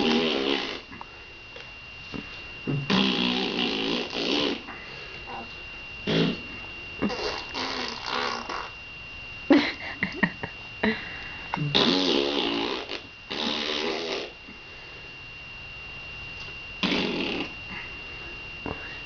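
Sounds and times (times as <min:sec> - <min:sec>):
baby blowing raspberries: 0:00.0 - 0:00.9, 0:02.7 - 0:04.7, 0:06.1 - 0:06.4, 0:07.0 - 0:08.7, 0:11.6 - 0:14.4, 0:16.8 - 0:17.5.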